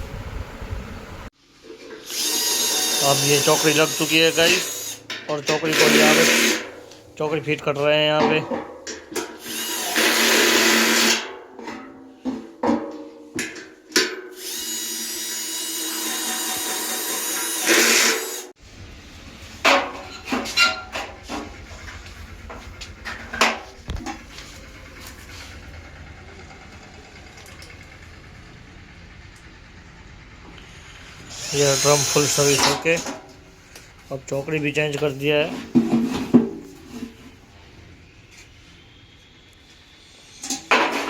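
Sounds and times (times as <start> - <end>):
power drill whine: 2.0 - 5.0, 9.4 - 11.2, 14.4 - 18.6, 30.4 - 33.0.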